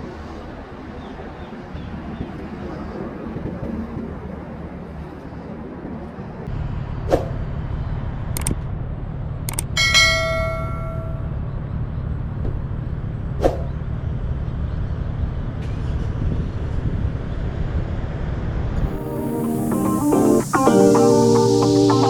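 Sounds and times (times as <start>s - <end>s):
ringing metallic clang: 9.8s - 11.4s.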